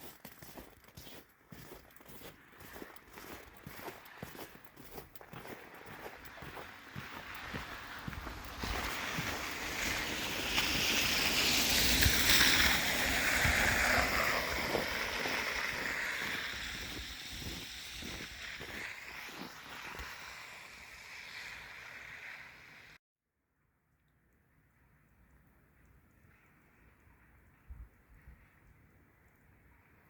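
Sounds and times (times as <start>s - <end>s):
tyres swishing on road: 2.4s - 23.0s.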